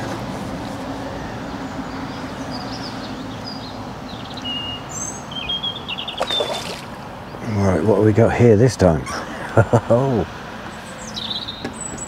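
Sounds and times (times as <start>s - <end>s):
small birds chirping: 1.0s - 8.1s, 10.6s - 12.0s.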